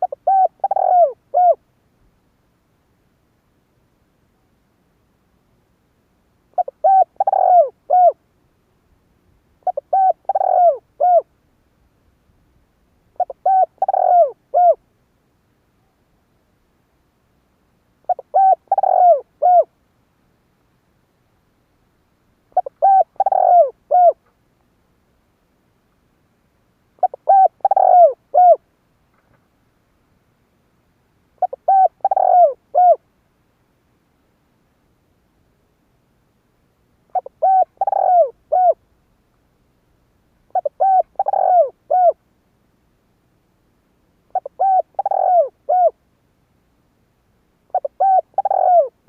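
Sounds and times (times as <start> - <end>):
dove cooing: 0.0 - 1.6, 6.5 - 8.2, 9.6 - 11.3, 13.2 - 14.8, 18.0 - 19.7, 22.5 - 24.2, 27.0 - 28.6, 31.4 - 33.0, 37.1 - 38.8, 40.5 - 42.2, 44.3 - 46.0, 47.7 - 49.0.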